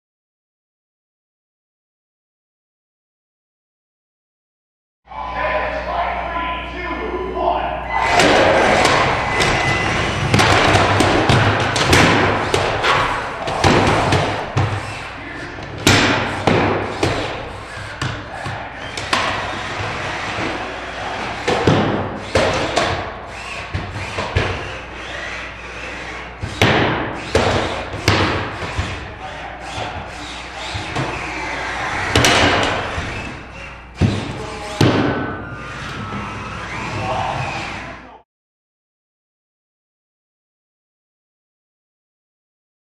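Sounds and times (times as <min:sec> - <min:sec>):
noisy background: 0:05.1 - 0:38.2.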